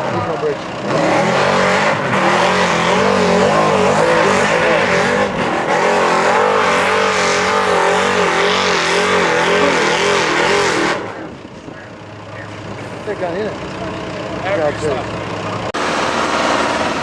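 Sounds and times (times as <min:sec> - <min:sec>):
truck engine revving hard: 0:00.0 - 0:17.0.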